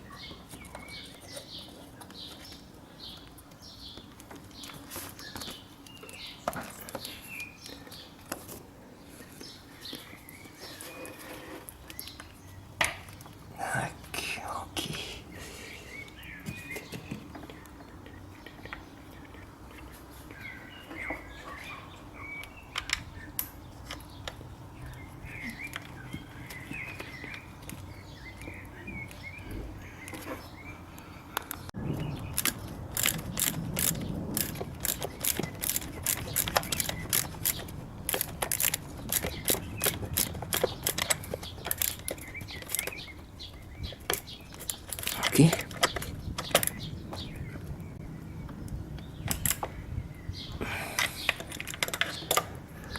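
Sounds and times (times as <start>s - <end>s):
ratchet clicking: 32.4s - 43.0s.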